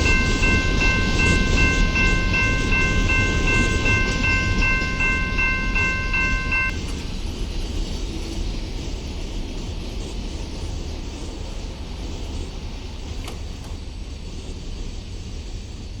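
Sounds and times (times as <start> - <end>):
bell dinging: 0.0 - 6.8
freight train cars rumbling: 0.0 - 16.0.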